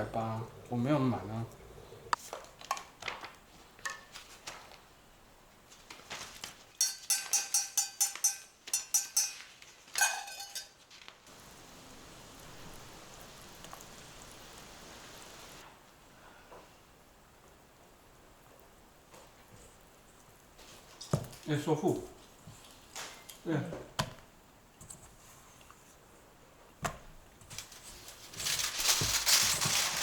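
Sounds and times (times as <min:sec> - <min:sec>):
steady hiss: 0:00.0 - 0:02.4, 0:10.4 - 0:26.6
metal utensil clinking on cookware: 0:06.8 - 0:10.8.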